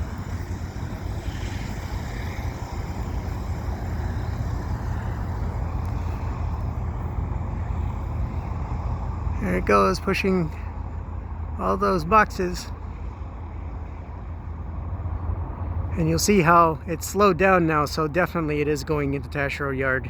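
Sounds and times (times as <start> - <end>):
diesel locomotive rumbling: 0.0 - 20.0.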